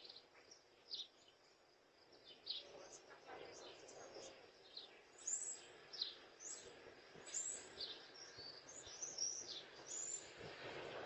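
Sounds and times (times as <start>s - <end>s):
faint outdoor background noise: 0.0s - 11.0s.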